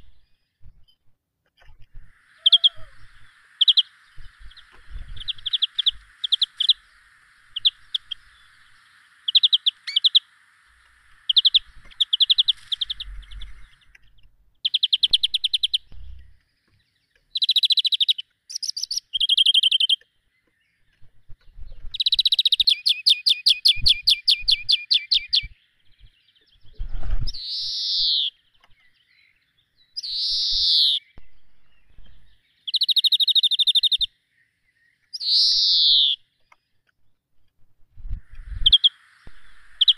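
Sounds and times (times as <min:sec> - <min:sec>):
songbirds chirping trills: 0:00.0 - 0:37.6, 0:38.2 - 0:39.9
faint steady hiss: 0:01.6 - 0:19.8, 0:20.4 - 0:39.9
falling whistled bird notes: 0:02.2 - 0:10.3.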